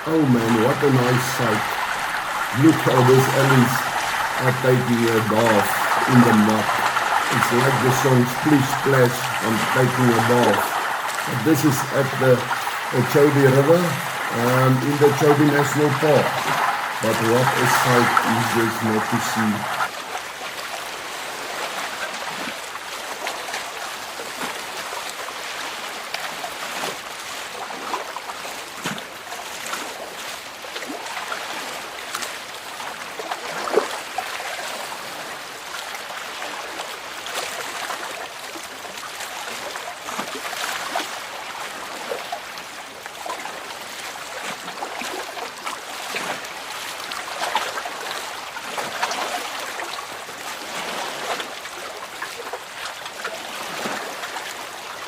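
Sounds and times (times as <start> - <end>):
elephants splashing in water: 0.0 - 19.9.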